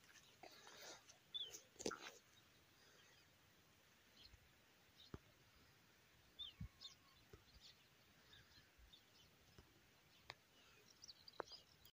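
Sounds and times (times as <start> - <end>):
faint bird chirps: 6.3 - 11.9.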